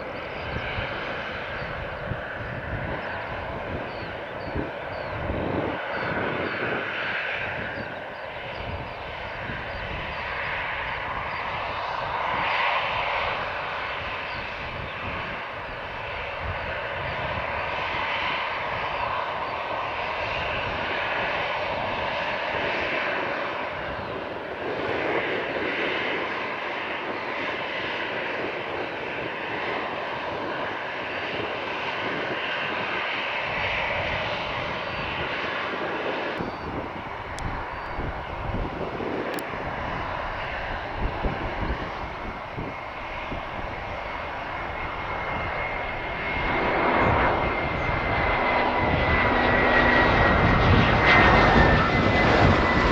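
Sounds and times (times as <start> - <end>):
jet engines running: 0.0 - 52.9.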